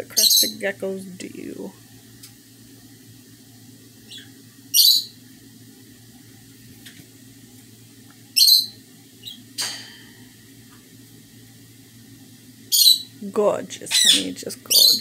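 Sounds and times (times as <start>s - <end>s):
pet bird calling: 0.2s - 0.6s, 4.1s - 5.1s, 8.4s - 9.4s, 12.7s - 13.2s, 13.9s - 15.0s.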